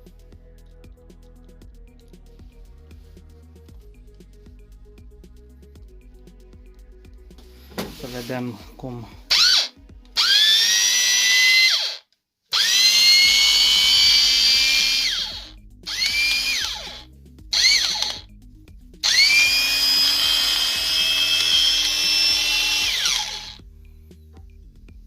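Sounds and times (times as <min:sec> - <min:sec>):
angle grinder whining: 0:09.3 - 0:18.2, 0:19.0 - 0:23.6.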